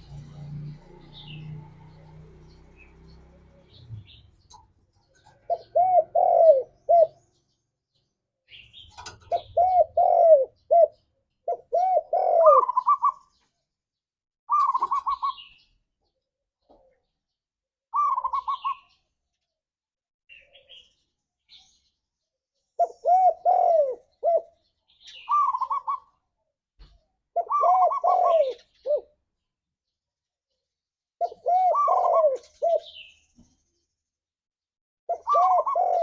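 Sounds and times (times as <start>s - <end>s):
dove cooing: 2.8s - 7.3s, 9.0s - 13.4s, 14.5s - 15.5s, 17.9s - 19.0s, 22.8s - 26.2s, 27.3s - 29.2s, 31.2s - 33.1s, 35.1s - 36.0s.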